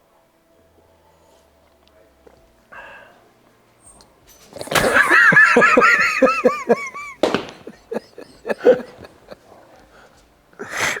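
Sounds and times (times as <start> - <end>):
person laughing heartily: 4.7 - 9.8.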